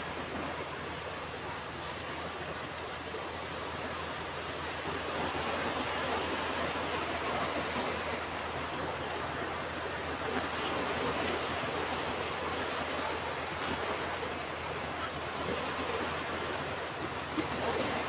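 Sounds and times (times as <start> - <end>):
ocean waves washing onto beach: 0.0 - 18.0.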